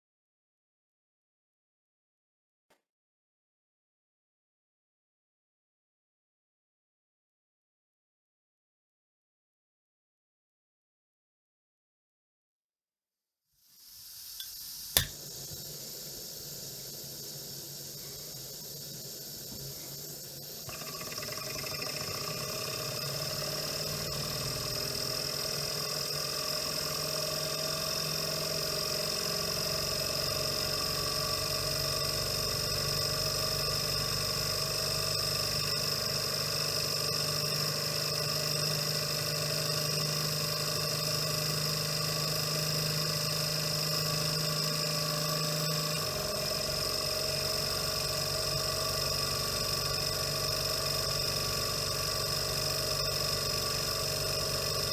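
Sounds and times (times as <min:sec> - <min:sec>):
stirling engine whirring hum: 0:17.5 - 0:54.9.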